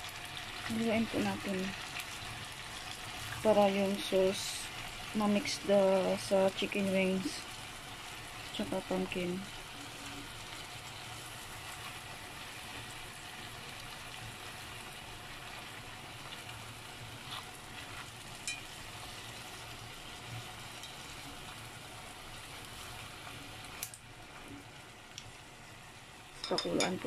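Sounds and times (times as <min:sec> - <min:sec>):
food sizzling in a pot: 0:00.0 - 0:27.0
chopsticks clicking against a pot: 0:18.4 - 0:18.7, 0:23.8 - 0:24.0.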